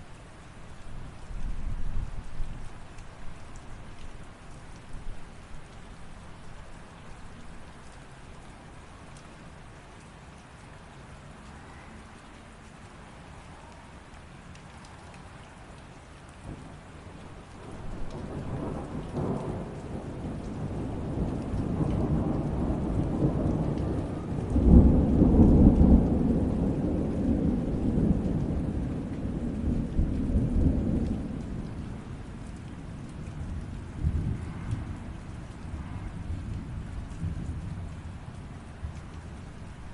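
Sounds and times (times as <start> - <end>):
steady rain: 0.0 - 39.9
rolling thunder: 17.6 - 32.1, 33.4 - 35.1.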